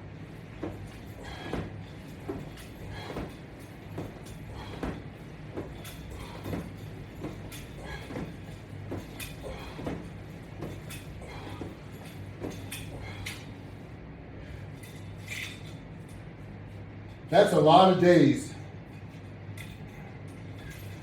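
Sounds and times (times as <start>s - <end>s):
exercise rig creaking and knocking: 0.5s - 13.6s.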